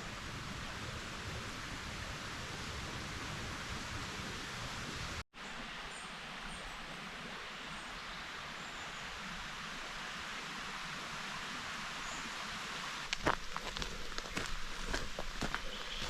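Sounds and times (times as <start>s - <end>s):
forest ambience hiss: 0.0s - 16.0s.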